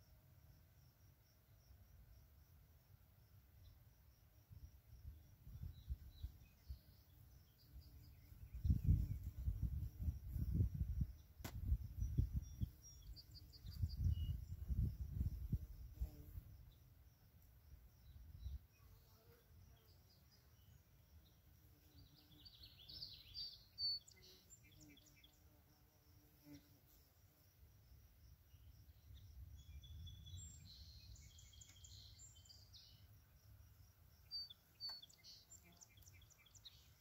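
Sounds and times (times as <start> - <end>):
faint birdsong: 3.2 - 4.0, 5.0 - 17.0, 17.8 - 25.6, 28.4 - 37.0
wind rumble on microphone: 5.0 - 6.4, 8.3 - 16.7.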